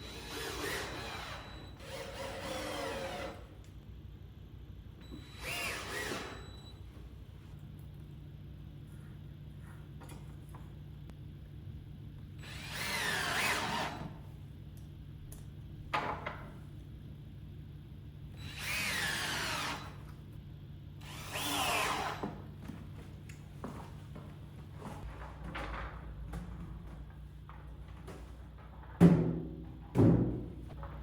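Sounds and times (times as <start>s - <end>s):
power drill driving screws: 0.0s - 3.4s, 5.2s - 6.4s, 12.4s - 14.0s, 18.4s - 20.0s, 21.0s - 22.2s.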